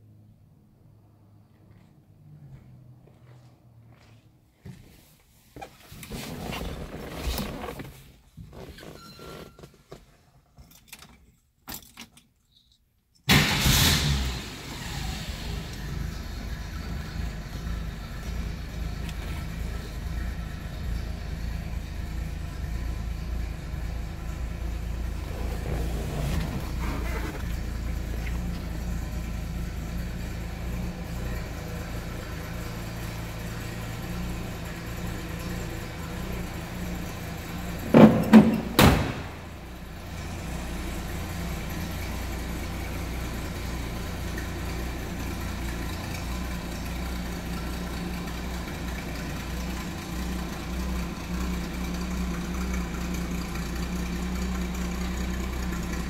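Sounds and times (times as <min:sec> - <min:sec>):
car engine idling: 0:13.3 - 0:56.0
car door shutting: 0:25.3 - 0:28.8, 0:37.9 - 0:39.6.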